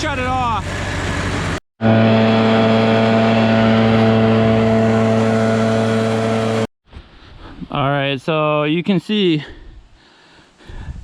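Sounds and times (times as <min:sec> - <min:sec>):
woodchipper engine droning: 0:00.6 - 0:06.7.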